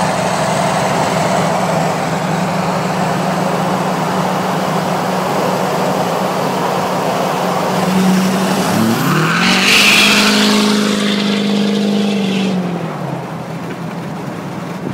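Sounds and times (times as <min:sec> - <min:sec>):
diesel engine accelerating hard: 0:00.0 - 0:14.9.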